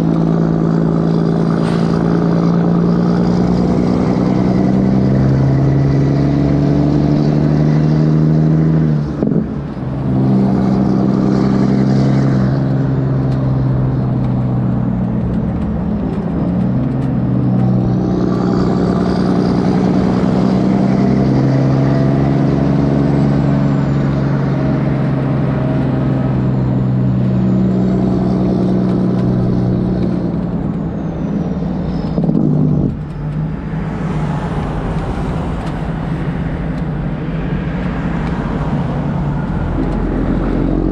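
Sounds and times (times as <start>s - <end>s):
loud diesel truck engine running: 0.0s - 7.5s.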